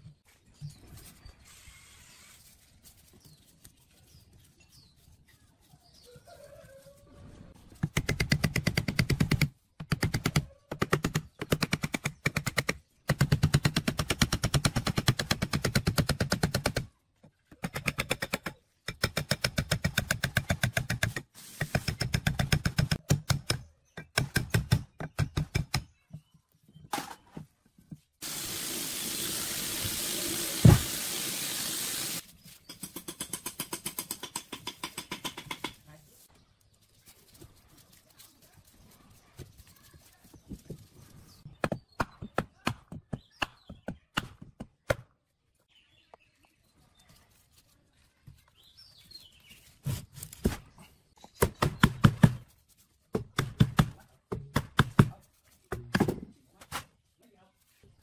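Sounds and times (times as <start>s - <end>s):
steady hiss: 28.2s - 32.2s.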